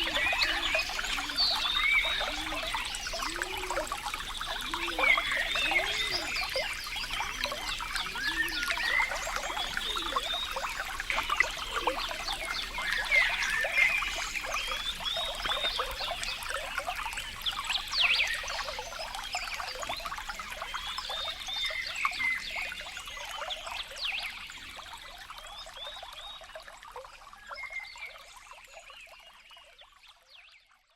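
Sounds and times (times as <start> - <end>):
water trickling and gurgling: 0.0 - 30.9.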